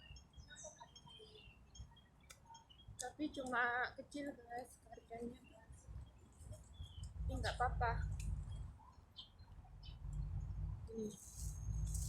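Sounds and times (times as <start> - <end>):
high bird chirps: 0.0 - 3.4.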